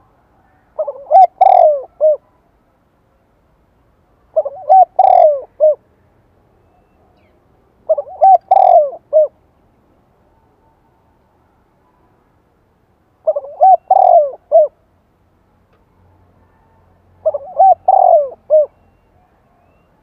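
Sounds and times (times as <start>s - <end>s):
dove cooing: 0.5s - 2.3s, 4.3s - 5.8s, 7.9s - 9.4s, 13.2s - 14.8s, 16.4s - 20.0s.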